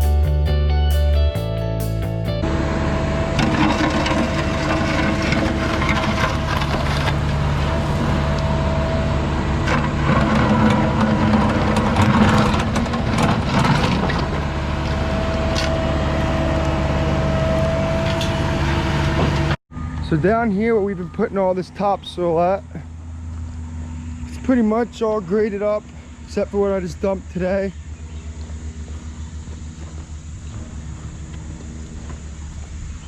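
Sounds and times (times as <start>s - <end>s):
diesel engine running under load: 1.2s - 33.0s
steady machine whine: 2.4s - 33.0s.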